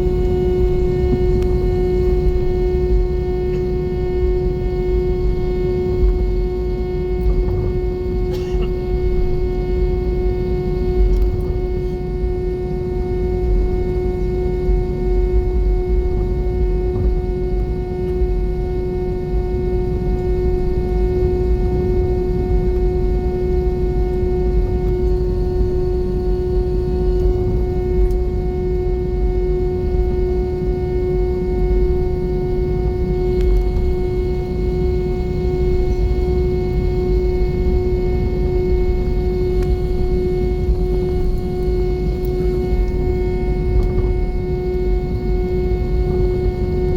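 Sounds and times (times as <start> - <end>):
airplane cabin engine rumble: 0.0 - 46.9
droning hum tone: 0.0 - 46.9.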